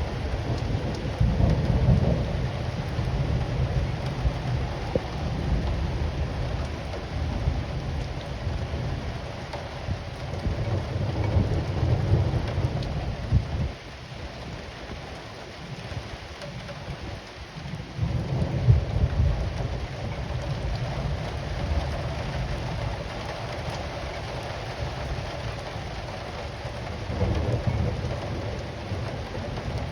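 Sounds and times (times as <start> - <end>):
thunder rumbling: 0.0 - 13.8, 17.9 - 29.9
heavy rain: 0.0 - 29.9.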